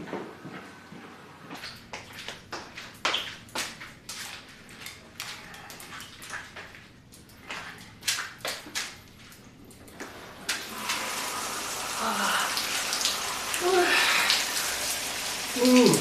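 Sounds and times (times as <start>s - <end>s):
running water: 4.3s - 16.0s.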